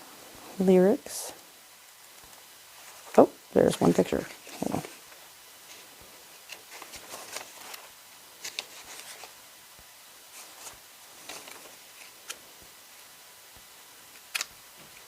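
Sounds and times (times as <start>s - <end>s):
paper and cardboard rustling: 2.8s - 9.4s, 10.3s - 12.4s.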